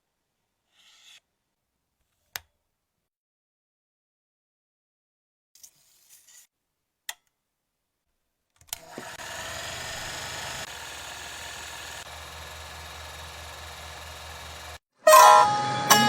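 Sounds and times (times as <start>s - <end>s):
machine whir: 8.8s - 14.8s.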